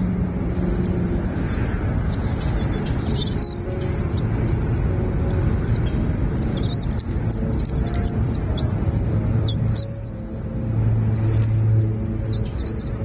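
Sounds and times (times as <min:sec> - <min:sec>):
steady low rumble: 0:00.0 - 0:13.0
small birds chirping: 0:01.4 - 0:04.3, 0:06.4 - 0:08.8, 0:09.4 - 0:10.3, 0:11.8 - 0:13.0.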